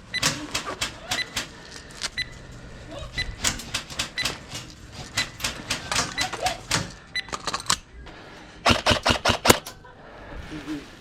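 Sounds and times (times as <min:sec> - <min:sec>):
airsoft guns firing: 0:08.6 - 0:09.8.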